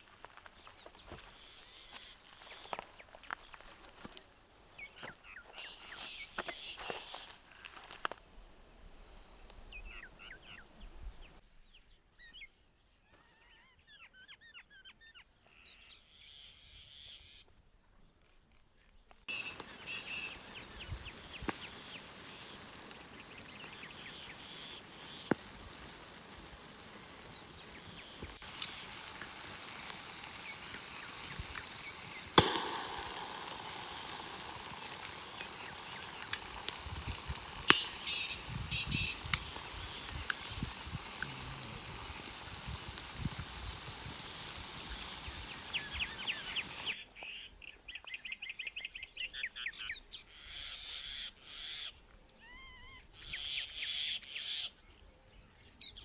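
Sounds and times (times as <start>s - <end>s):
small birds chirping: 0.0s - 8.1s, 9.2s - 55.0s
sharp cracks or knocks: 28.4s - 41.0s.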